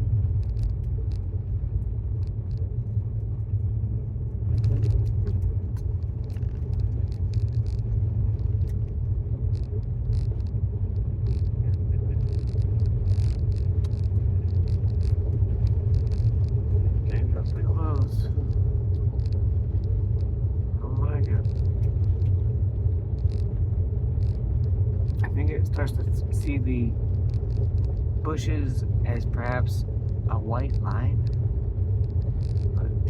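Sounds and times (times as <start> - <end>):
road and tyre rumble: 0.0 - 33.0.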